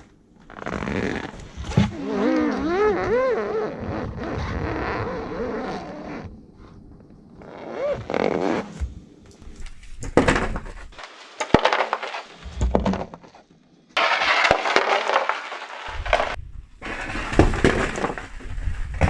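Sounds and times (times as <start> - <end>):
tyre crushing brittle objects: 9.4 - 13.4, 14.0 - 19.0.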